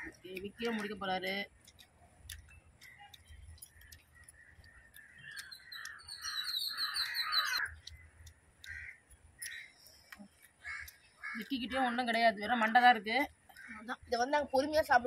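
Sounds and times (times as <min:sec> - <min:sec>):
small bird twittering: 0:01.6 - 0:12.0
bird calling: 0:02.4 - 0:12.0.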